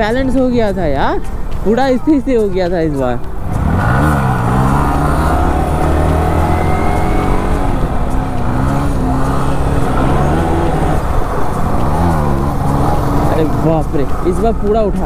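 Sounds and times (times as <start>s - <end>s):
motorcycle engine revving: 3.3s - 14.7s.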